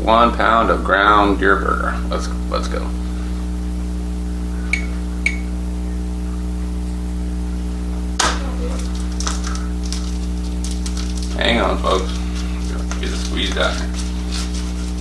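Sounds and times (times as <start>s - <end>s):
electrical hum: 0.0s - 15.0s
package rustling: 8.2s - 15.0s.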